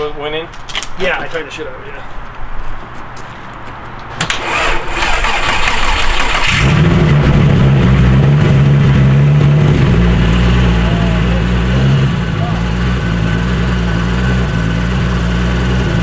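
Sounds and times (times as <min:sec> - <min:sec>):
engine cranking on starter: 0:04.2 - 0:07.2
car engine idling: 0:04.5 - 0:16.0.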